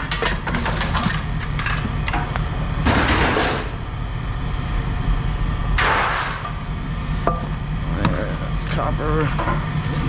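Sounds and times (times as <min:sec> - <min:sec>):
metal rattling scrape: 0:00.1 - 0:01.8
low rumble: 0:00.6 - 0:10.0.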